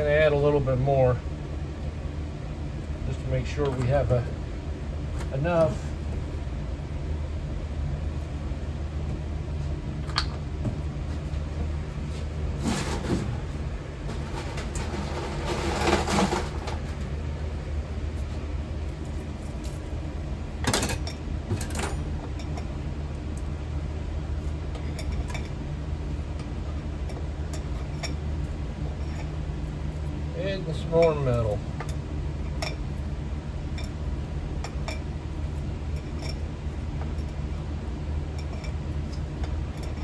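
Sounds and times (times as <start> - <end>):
steady low hum: 0.0 - 40.0
scraping rustle: 12.0 - 17.1.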